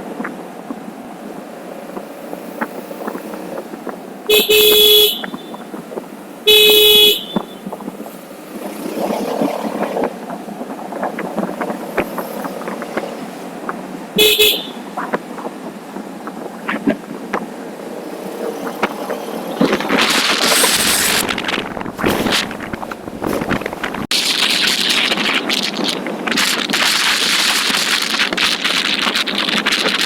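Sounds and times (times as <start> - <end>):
road and wind noise: 0.0 - 30.0
vehicle horn blasts: 4.3 - 5.7, 6.5 - 7.8, 14.2 - 14.9.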